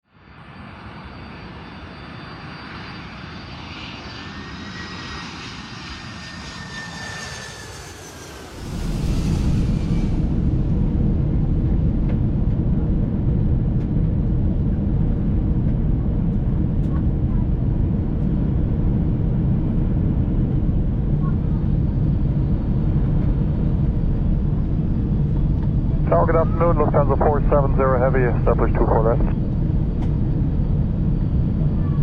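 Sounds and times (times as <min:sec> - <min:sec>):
jet engines whining: 0:00.3 - 0:32.0
loud steady low rumble: 0:08.4 - 0:32.0.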